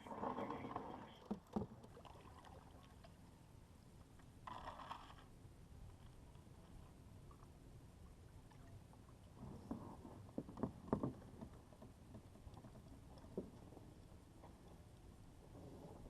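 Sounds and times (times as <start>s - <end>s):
canoe paddle strokes: 0.0s - 3.2s.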